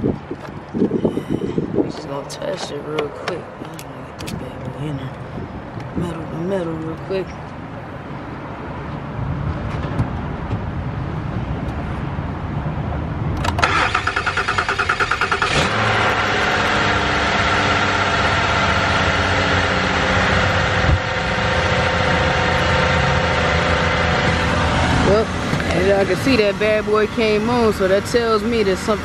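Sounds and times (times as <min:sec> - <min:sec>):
car engine starter cranking: 0:13.4 - 0:17.4
car engine idling: 0:13.6 - 0:29.0.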